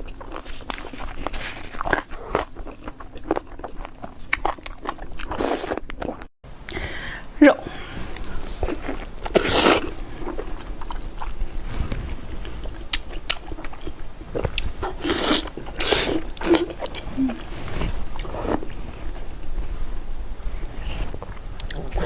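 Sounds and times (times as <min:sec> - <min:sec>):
person chewing and biting food: 0:00.0 - 0:06.3, 0:12.4 - 0:17.1.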